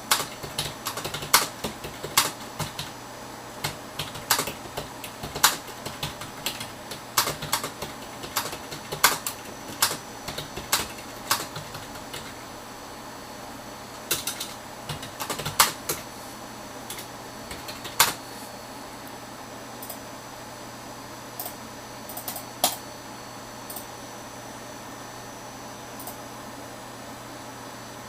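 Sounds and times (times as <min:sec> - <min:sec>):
typing on computer keyboard: 0:00.0 - 0:02.9, 0:03.6 - 0:12.4, 0:14.1 - 0:16.0, 0:16.9 - 0:18.2, 0:21.4 - 0:22.8.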